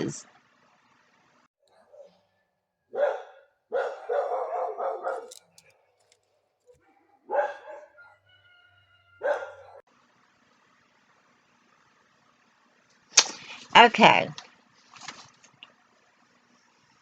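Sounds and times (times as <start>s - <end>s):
dog barking: 1.7s - 5.4s, 6.7s - 9.9s.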